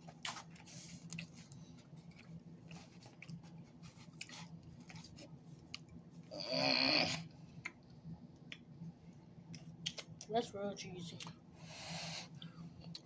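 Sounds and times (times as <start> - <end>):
chewing with mouth clicks: 0.0 - 6.0
low steady hum: 0.0 - 13.0.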